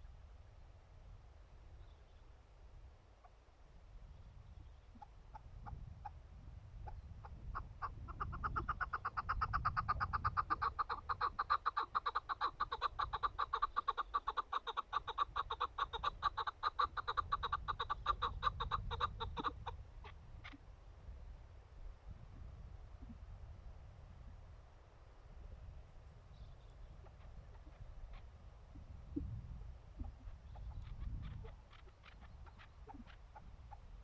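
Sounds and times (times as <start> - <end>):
partridge clucking calls: 4.9 - 6.2, 6.8 - 20.6, 26.4 - 29.3, 30.0 - 34.0.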